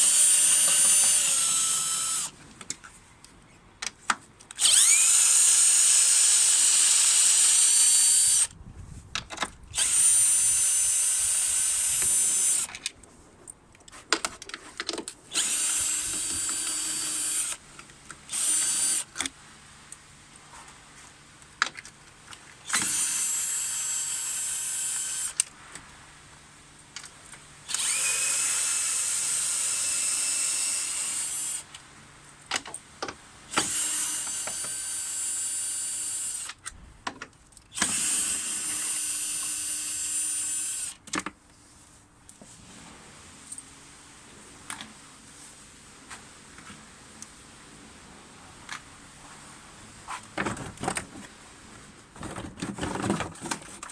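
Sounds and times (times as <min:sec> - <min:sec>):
electric drill-driver whine: 0:00.0 - 0:02.3, 0:04.6 - 0:08.5, 0:09.7 - 0:12.8, 0:15.3 - 0:17.6, 0:18.3 - 0:19.2, 0:22.6 - 0:25.6, 0:27.6 - 0:31.7, 0:33.5 - 0:36.6, 0:37.7 - 0:41.0.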